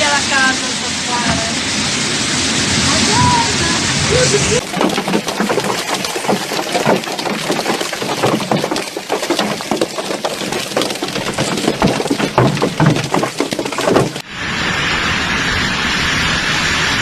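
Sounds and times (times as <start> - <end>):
storm wind: 0.0 - 4.7
irregular knocks and clatters: 4.6 - 14.2.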